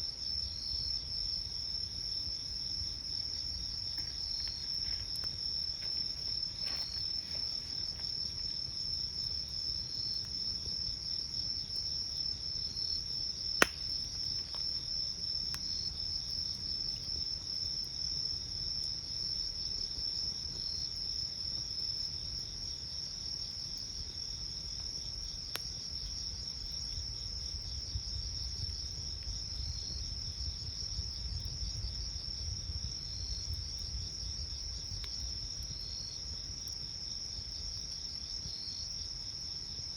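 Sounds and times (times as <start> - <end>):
insect chirp: 0.0 - 39.9
insects trilling: 0.0 - 39.9
campfire popping: 0.2 - 39.0.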